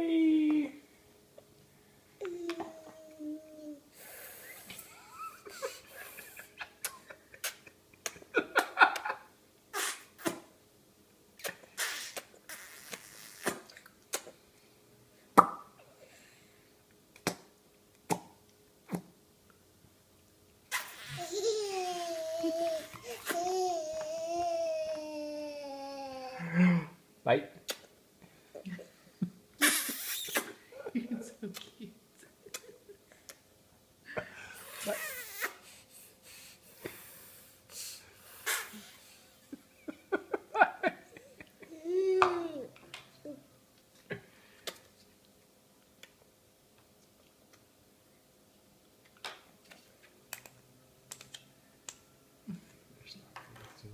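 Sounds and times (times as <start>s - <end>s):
soft hiss: 0.0s - 53.9s
sharp taps and smacks: 17.1s - 19.0s
child breathing noisily: 35.6s - 39.2s.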